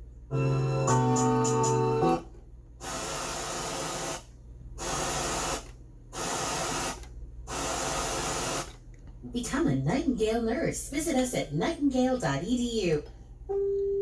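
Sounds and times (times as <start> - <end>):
static hiss: 2.8 - 8.8.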